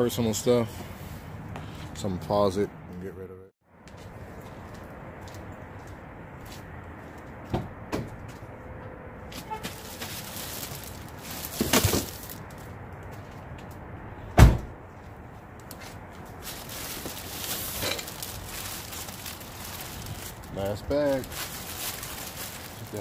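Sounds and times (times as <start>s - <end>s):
bags rustling: 9.5s - 12.6s, 16.3s - 23.0s
heavy low thud: 14.4s - 14.8s.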